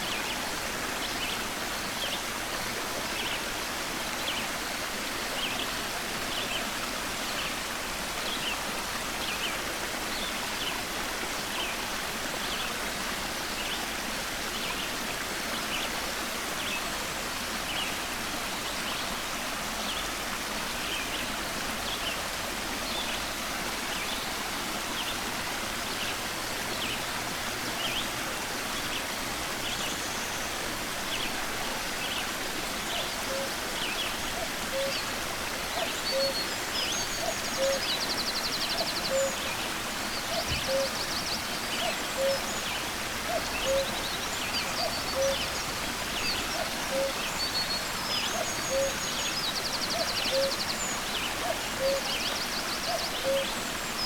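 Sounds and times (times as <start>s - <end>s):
stream water flowing: 0.0s - 54.0s
songbird chirping: 35.8s - 54.0s.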